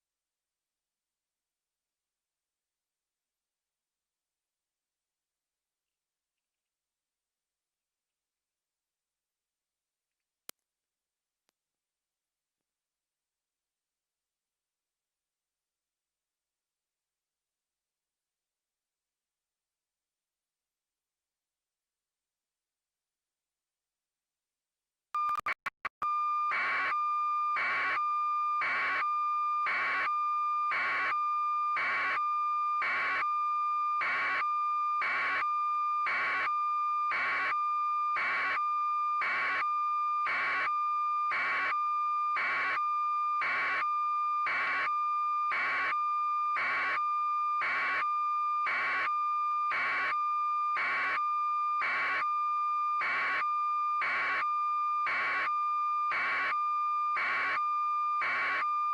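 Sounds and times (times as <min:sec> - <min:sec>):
high electronic tone with beeps: 0:25.2 - 0:25.9.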